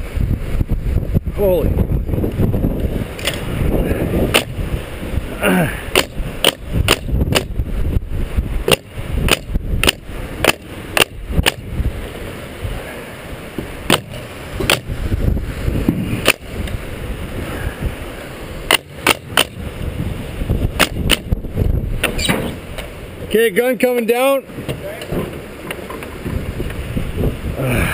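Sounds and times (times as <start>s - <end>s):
wind rumble on microphone: 0.0s - 23.5s, 24.5s - 27.9s
nail gun firing: 4.3s - 4.5s, 5.9s - 7.6s, 8.7s - 11.6s, 13.9s - 14.9s, 16.2s - 16.4s, 18.7s - 19.6s, 20.8s - 21.3s.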